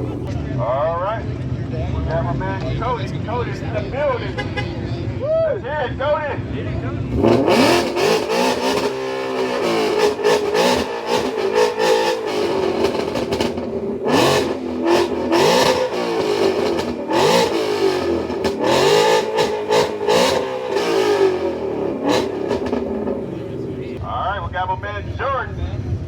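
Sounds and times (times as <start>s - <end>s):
car engine revving: 0.0s - 5.2s, 5.8s - 24.0s.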